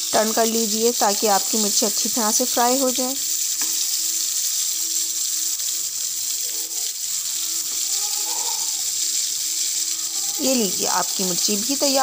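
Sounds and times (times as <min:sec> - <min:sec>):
chillies sizzling in hot oil: 0:00.0 - 0:12.0.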